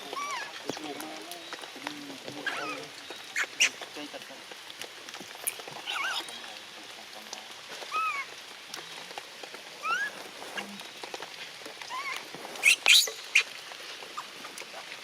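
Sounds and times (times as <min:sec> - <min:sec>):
steady background hiss: 0:00.0 - 0:15.0
young animal squeaky calls: 0:02.4 - 0:03.8, 0:05.8 - 0:06.3, 0:07.9 - 0:08.3, 0:09.8 - 0:10.2, 0:11.9 - 0:13.5.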